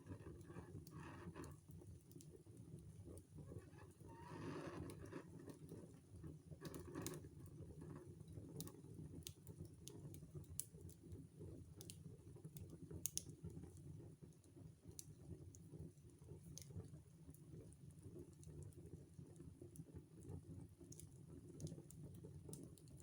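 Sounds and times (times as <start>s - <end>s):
wood fire crackling: 0.2s - 10.8s.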